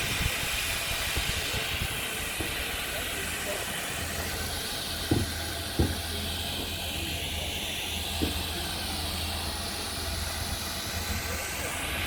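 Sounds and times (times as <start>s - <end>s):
steam locomotive hissing: 0.0s - 12.0s
dull knocks: 5.1s - 6.0s.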